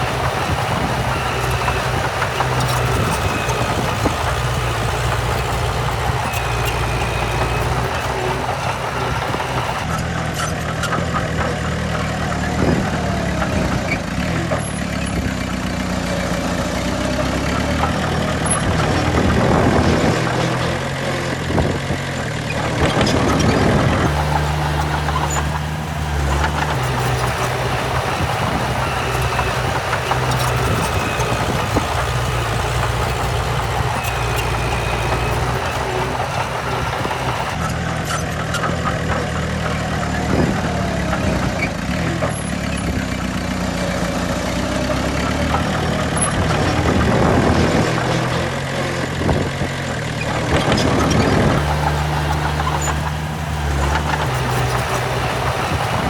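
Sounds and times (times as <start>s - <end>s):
heavy diesel engines running: 0.0s - 10.2s, 24.0s - 37.7s, 51.6s - 56.0s.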